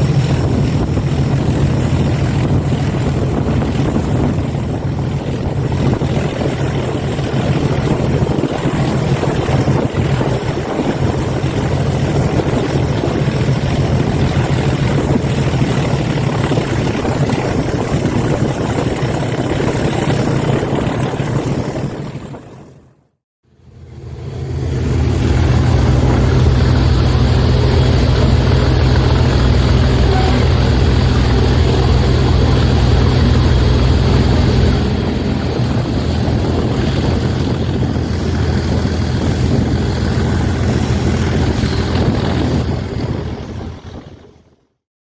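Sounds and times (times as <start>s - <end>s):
diesel locomotive engine droning: 23.5s - 44.1s.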